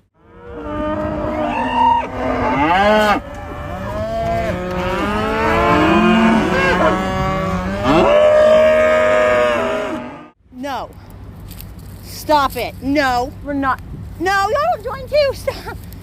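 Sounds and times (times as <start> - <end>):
cattle mooing: 0.2 - 10.3.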